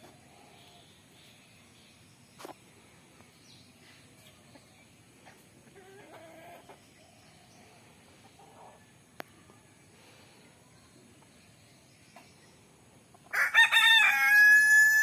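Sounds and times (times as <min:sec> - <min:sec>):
hens clucking: 0:04.5 - 0:07.0.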